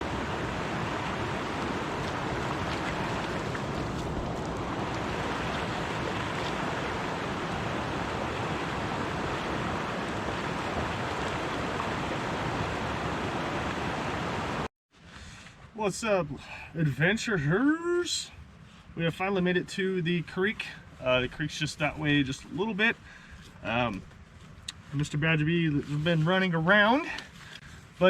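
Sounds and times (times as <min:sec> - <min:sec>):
creek water rushing over rocks: 0:00.0 - 0:14.7.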